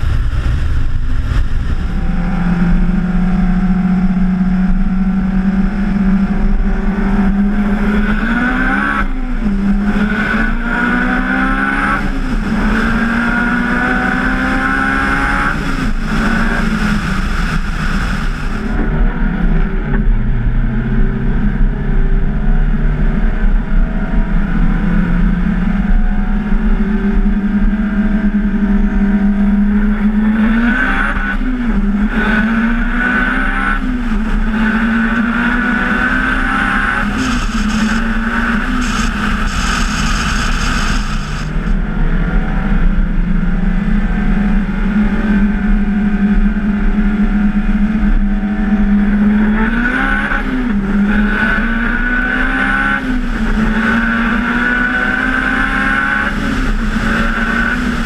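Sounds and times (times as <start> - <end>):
car engine running loud: 0.0 - 58.0
hissing: 37.0 - 41.7.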